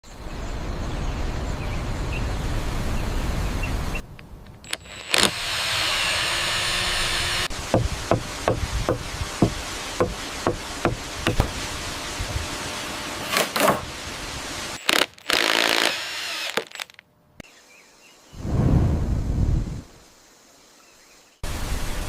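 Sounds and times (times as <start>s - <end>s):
noise bursts and hiss: 0.1s - 22.0s
tools knocking on wood: 7.7s - 11.5s.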